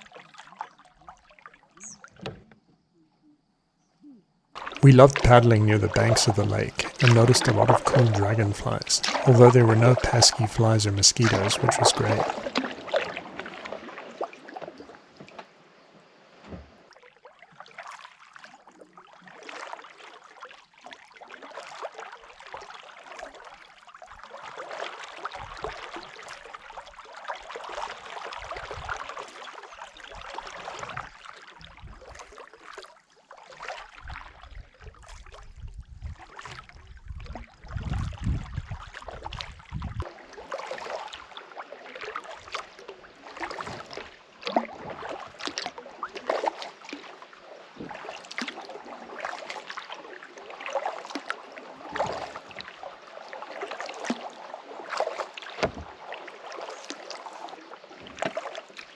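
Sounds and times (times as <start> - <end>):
paddle splashing in water: 6.0 - 15.6, 24.5 - 32.8, 38.9 - 58.9.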